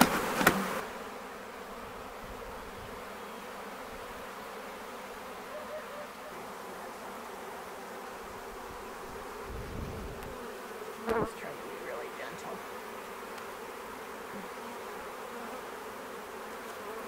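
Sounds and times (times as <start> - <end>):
sharp knocks: 0.0 - 0.7
bees buzzing: 0.0 - 17.0.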